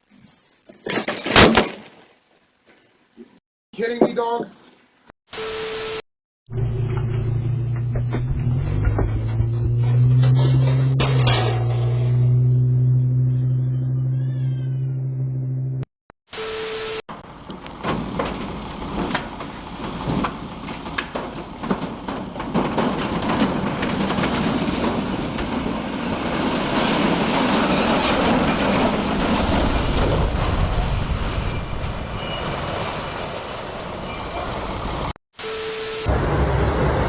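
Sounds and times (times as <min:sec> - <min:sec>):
knocks and clatters: 0:06.9 - 0:12.4, 0:17.4 - 0:31.0.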